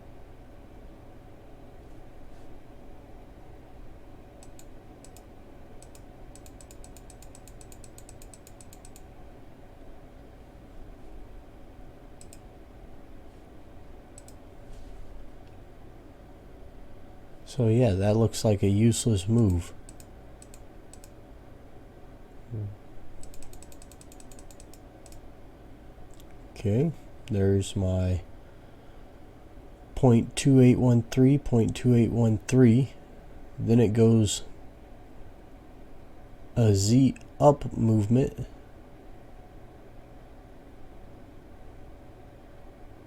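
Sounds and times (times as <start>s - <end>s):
low steady hum: 0.0s - 43.0s
computer input clicks: 4.4s - 9.1s, 19.4s - 21.2s, 23.2s - 25.2s.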